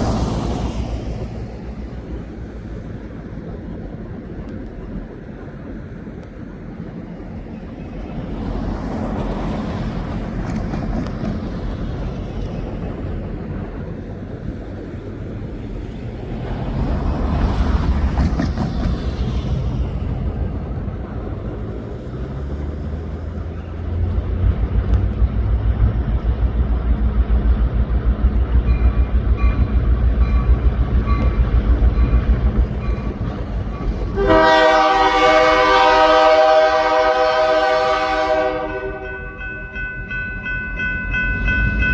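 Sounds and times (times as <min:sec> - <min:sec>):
locomotive engine rumble: 0:00.0 - 0:41.9
locomotive air horn: 0:34.1 - 0:39.2.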